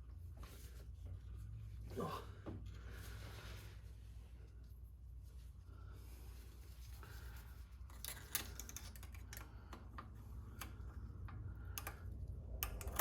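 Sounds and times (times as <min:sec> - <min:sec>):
metallic clicks of steel parts: 0:07.9 - 0:13.0.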